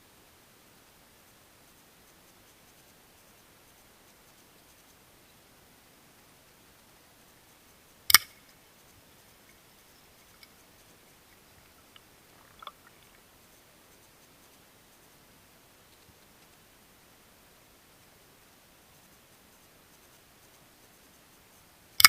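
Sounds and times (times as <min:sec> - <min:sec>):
faint ticks: 0:00.0 - 0:22.0
low hiss: 0:00.0 - 0:22.0
sharp loud click: 0:08.1 - 0:08.4.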